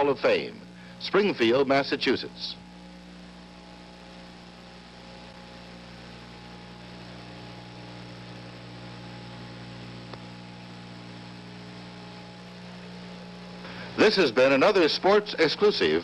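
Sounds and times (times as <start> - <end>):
mains hum: 0.0 - 16.0
tape hiss: 0.0 - 16.0.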